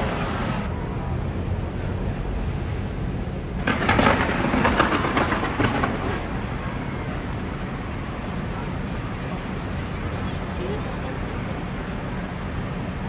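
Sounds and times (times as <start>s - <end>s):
fireworks crackling: 2.4s - 9.2s.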